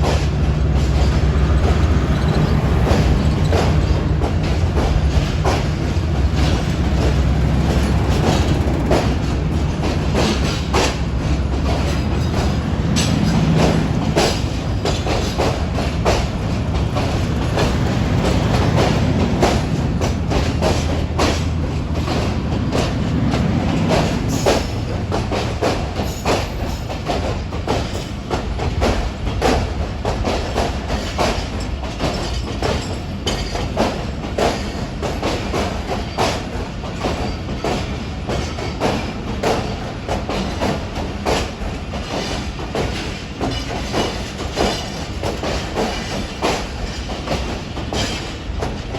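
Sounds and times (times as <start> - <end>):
diesel locomotive engine hum: 0.0 - 48.9
train wheels clacking over rail joints: 0.0 - 48.9.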